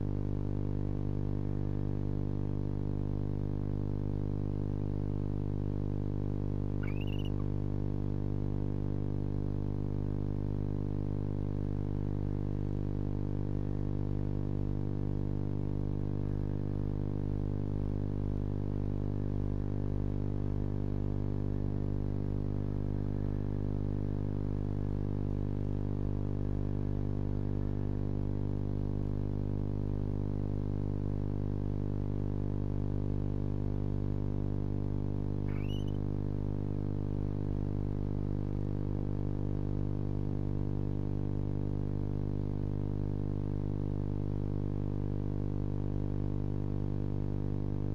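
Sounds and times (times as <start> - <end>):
electrical hum: 0.0 - 12.9, 34.6 - 37.8
faint rising chirp: 6.8 - 7.4, 35.5 - 36.0.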